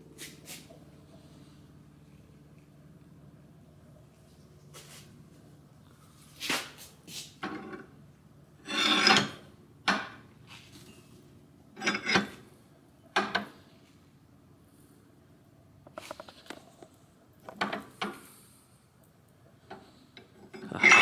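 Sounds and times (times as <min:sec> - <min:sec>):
file scraping on steel: 0:08.6 - 0:09.4, 0:20.5 - 0:21.0.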